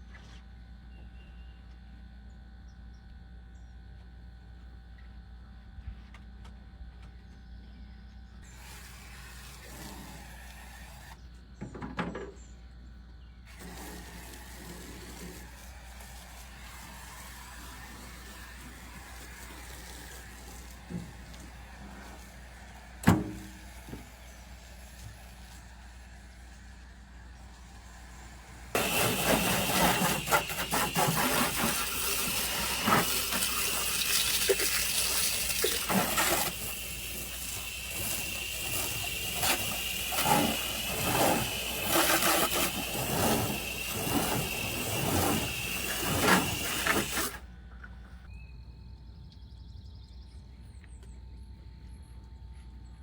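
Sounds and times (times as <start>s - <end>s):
water jet spraying a vehicle: 8.4s - 11.2s, 13.5s - 47.5s.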